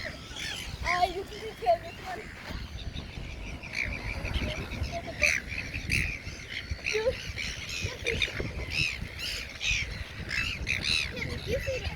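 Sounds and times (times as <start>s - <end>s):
birds squawking: 0.0s - 11.9s.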